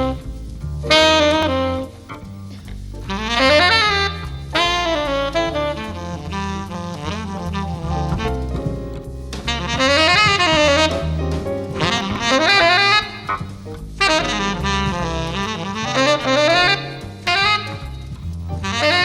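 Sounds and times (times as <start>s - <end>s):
saxophone playing: 0.0s - 19.0s
walking bass line: 0.0s - 19.0s.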